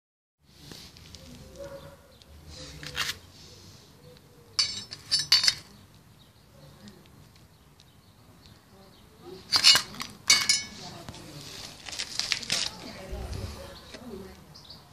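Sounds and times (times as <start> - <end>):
metallic clinks and clatter: 4.6 - 5.7.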